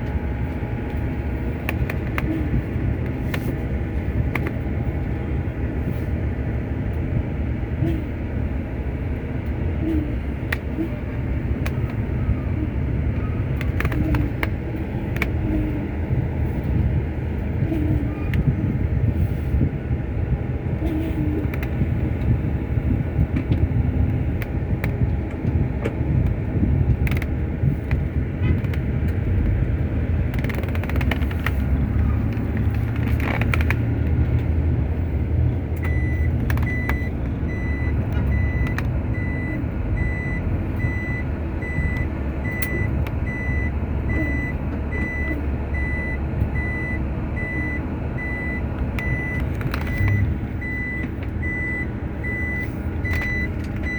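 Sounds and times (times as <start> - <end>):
truck engine rumbling: 0.0 - 53.9
reversing alarm beeping: 35.8 - 53.9.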